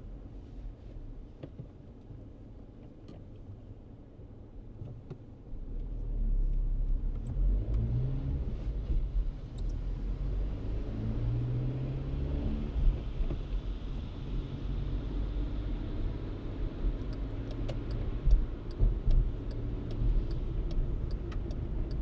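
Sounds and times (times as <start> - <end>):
car accelerating: 7.3 - 22.0.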